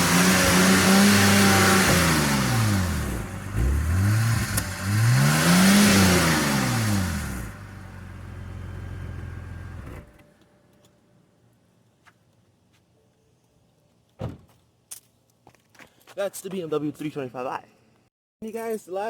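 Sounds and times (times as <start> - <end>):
car engine revving: 0.0 - 10.1.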